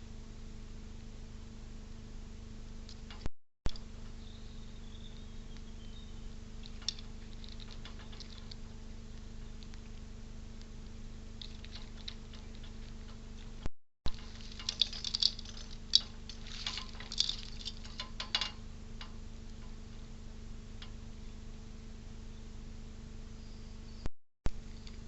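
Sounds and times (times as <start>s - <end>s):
steady electrical hum: 0.0s - 25.0s
squirrel scrabbling and clicking: 5.4s - 20.1s.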